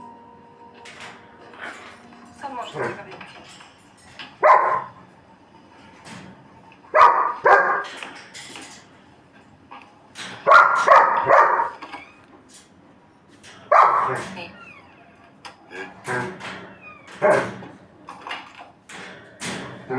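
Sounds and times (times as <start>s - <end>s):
dog barking: 4.4s - 5.0s, 6.9s - 8.0s, 10.4s - 11.8s, 13.7s - 14.3s, 17.2s - 17.6s.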